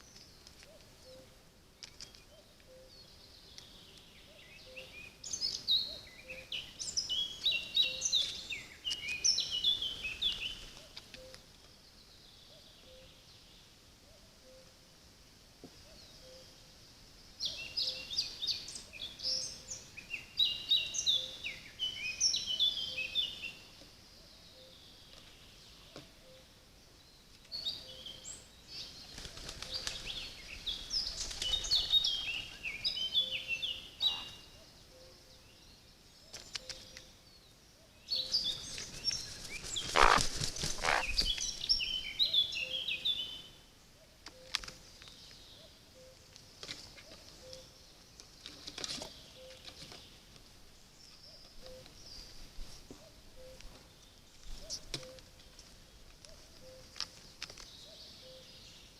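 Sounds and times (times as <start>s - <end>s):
songbird twittering: 0.0s - 11.5s, 17.4s - 26.5s, 27.4s - 43.6s
wings flapping: 29.1s - 30.2s, 31.1s - 31.9s, 38.7s - 41.3s.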